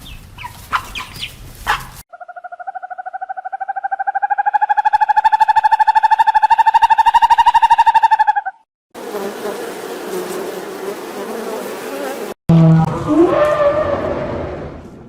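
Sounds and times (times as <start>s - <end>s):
insect buzzing: 9.0s - 12.4s.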